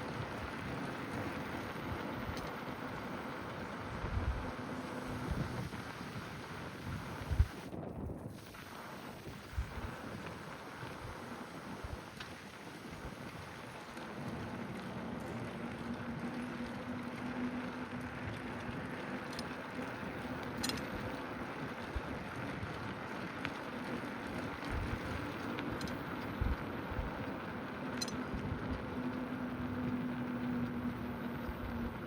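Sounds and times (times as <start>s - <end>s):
low steady hum: 0.0s - 32.0s
road noise from bicycle: 0.0s - 32.0s.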